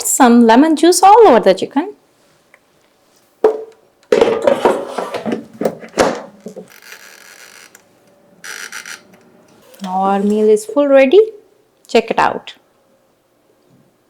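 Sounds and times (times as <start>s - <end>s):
clattering and scraping: 4.1s - 7.7s.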